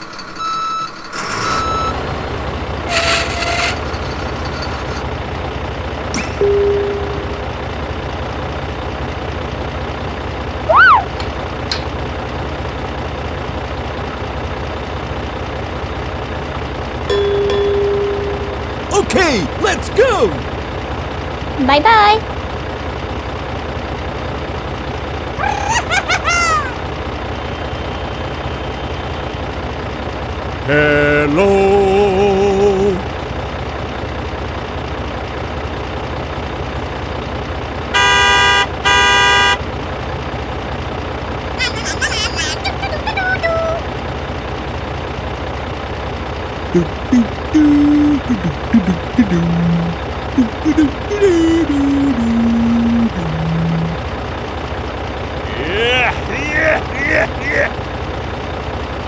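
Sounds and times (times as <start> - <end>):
tractor engine idling: 0.0 - 25.5
low engine running: 0.0 - 42.1, 42.9 - 59.0
vehicle horn honking: 38.0 - 39.6.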